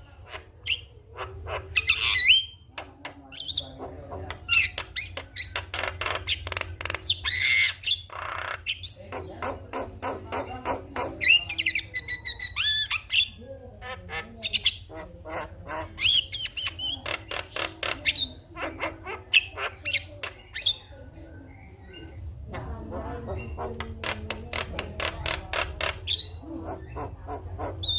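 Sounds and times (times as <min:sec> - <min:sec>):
myna calling: 0:00.0 - 0:27.9.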